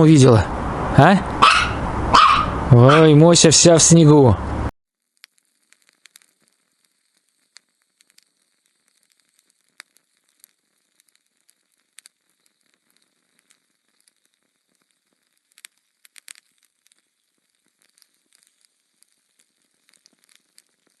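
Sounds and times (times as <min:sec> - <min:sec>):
little clicks and crackles: 0:05.0 - 0:21.0.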